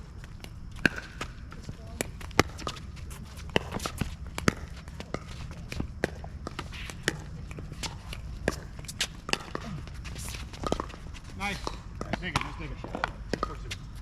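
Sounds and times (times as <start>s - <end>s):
footsteps: 0.0s - 14.0s
ball bouncing on court: 0.2s - 14.0s
paddles hitting plastic ball: 3.4s - 13.8s.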